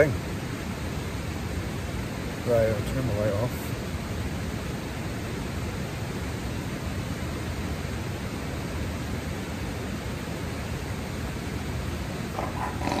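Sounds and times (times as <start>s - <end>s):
river water rushing: 3.6s - 13.0s.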